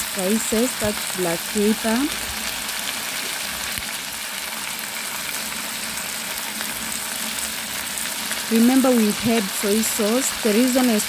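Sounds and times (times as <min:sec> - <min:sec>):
chicken sizzling in a metal pan: 0:00.0 - 0:11.0.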